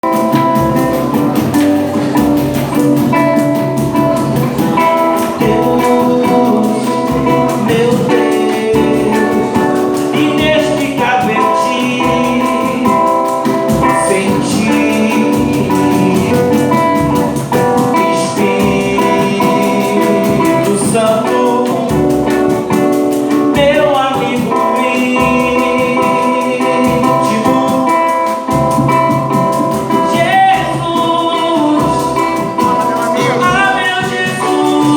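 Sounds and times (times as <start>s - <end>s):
group singing gospel: 0.0s - 22.5s, 30.0s - 34.9s
guitar accompaniment: 0.0s - 34.9s.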